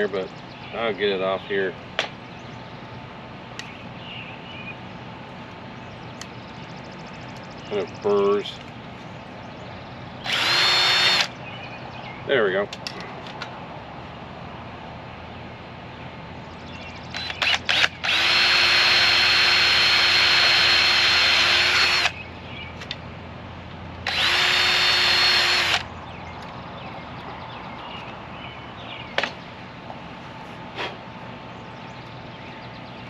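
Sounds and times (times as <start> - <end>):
power drill whining through metal: 10.2 - 11.3, 17.1 - 22.2, 24.0 - 25.8.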